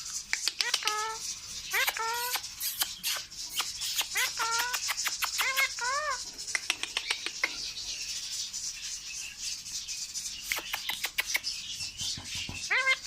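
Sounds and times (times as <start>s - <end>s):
parrot high-pitched chatter: 0.0s - 7.7s, 10.4s - 13.0s.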